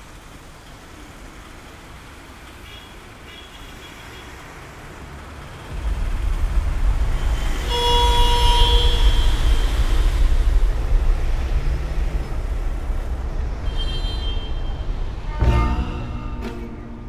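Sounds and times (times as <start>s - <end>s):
street traffic: 0.0s - 17.0s
deep vehicle engine rumble: 4.9s - 17.0s
vehicle horn: 7.6s - 10.0s, 13.6s - 17.0s.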